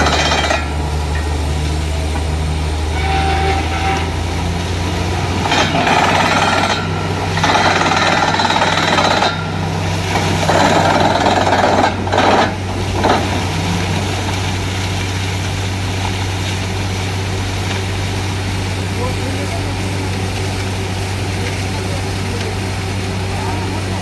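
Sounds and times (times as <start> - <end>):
harsh hammering bursts: 0.0 - 1.5, 2.1 - 14.5
drilling rig engine hum: 0.0 - 24.0.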